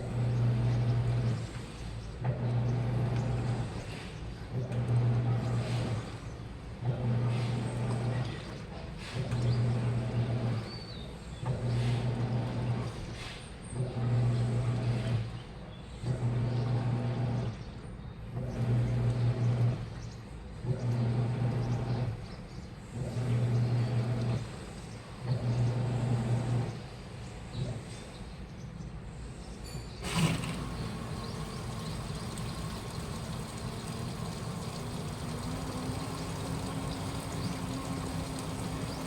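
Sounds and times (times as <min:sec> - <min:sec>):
washing machine motor humming: 0:00.0 - 0:08.5, 0:09.2 - 0:10.7, 0:11.4 - 0:13.0, 0:13.8 - 0:15.3, 0:16.1 - 0:17.5, 0:18.4 - 0:19.8, 0:20.7 - 0:22.1, 0:23.1 - 0:24.6, 0:25.3 - 0:26.7, 0:30.0 - 0:39.0.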